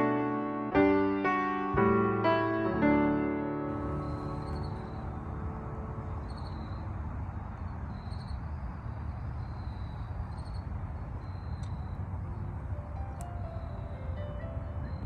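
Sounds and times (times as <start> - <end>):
low rumble: 3.5 - 7.7.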